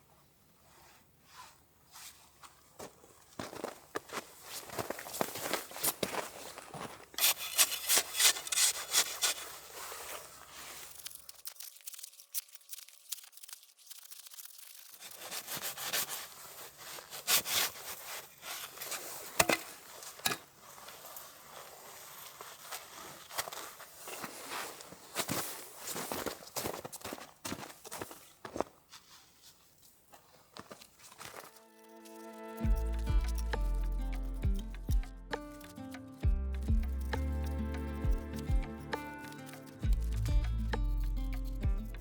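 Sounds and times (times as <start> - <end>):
packed snow scraped and crunched: 2.8 - 11.0, 15.0 - 28.3.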